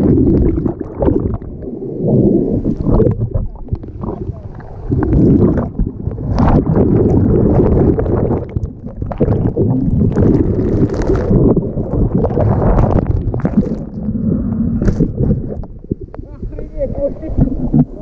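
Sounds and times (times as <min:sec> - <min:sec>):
muffled rush of surf: 0:01.6 - 0:08.4.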